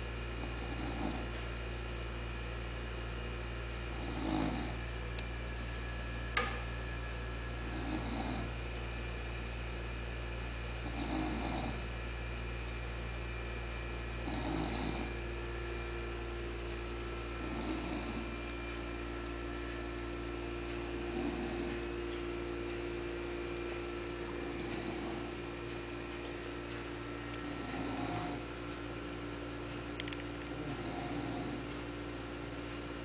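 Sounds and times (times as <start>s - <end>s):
steady electrical hum: 0.0s - 33.0s
dog snoring: 0.3s - 1.4s, 3.8s - 4.9s, 7.6s - 8.6s, 10.7s - 12.0s, 14.1s - 15.3s, 17.3s - 18.4s, 20.7s - 22.1s, 24.2s - 25.9s, 27.4s - 28.7s, 30.5s - 31.8s.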